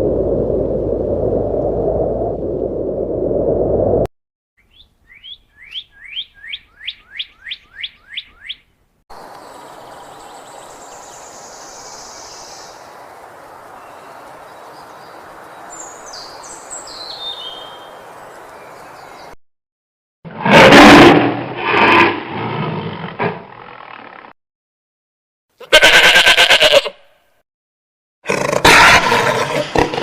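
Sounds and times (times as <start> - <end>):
faint high bird calls: 4.6 - 12.9
bird chirping: 4.6 - 19.4
steady outdoor hiss: 9.1 - 19.3.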